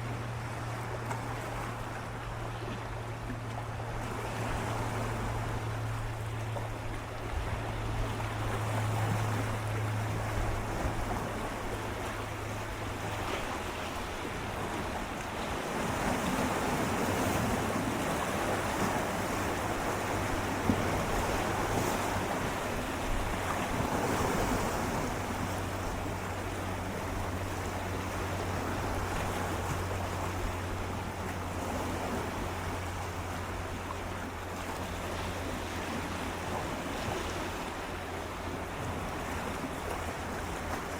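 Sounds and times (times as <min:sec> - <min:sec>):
low hum: 0:00.0 - 0:15.6
sea waves lapping against rocks: 0:00.0 - 0:40.9.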